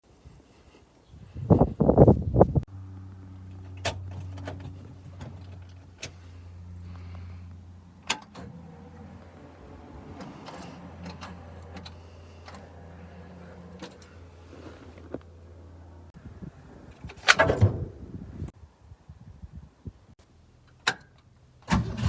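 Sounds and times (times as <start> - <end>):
car engine idling: 2.7 - 16.2.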